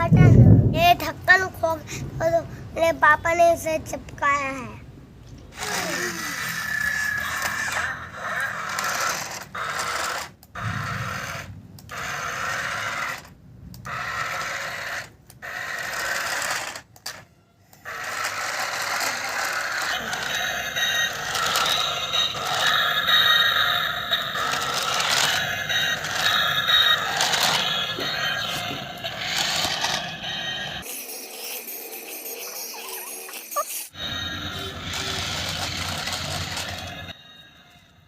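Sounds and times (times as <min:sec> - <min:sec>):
toy motor and gears whirring: 0:05.5 - 0:37.2.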